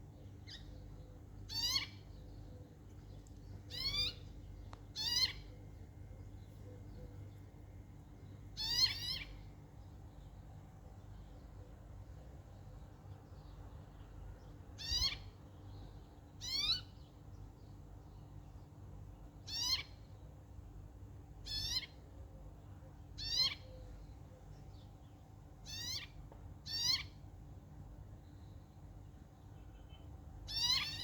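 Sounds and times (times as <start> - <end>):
bird calls with downward sweep: 3.7 - 4.3, 5.0 - 5.5.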